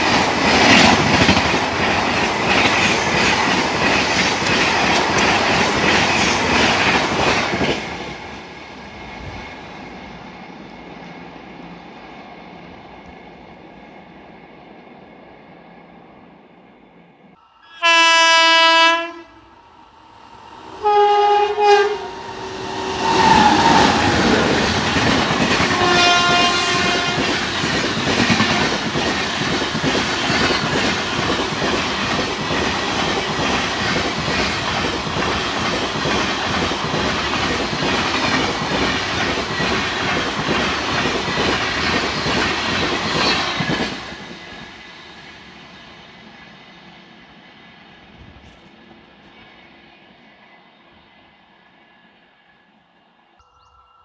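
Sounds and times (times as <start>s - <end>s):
train wheels rushing and rattling: 0.0s - 14.2s, 22.1s - 50.2s
train horn blasts: 17.6s - 19.6s, 20.8s - 24.7s, 25.5s - 27.5s.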